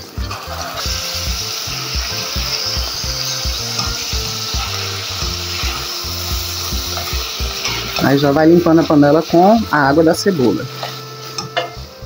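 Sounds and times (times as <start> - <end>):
background music beat: 0.0 - 12.0
onion sizzling in a pot: 0.0 - 12.0
wooden spoon scraping a pot: 10.6 - 11.8.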